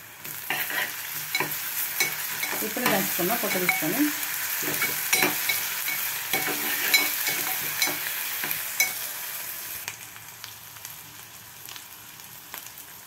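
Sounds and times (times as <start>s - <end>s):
onions sizzling in a pot: 0.0s - 13.0s
spoon scraping a pot: 0.5s - 9.0s.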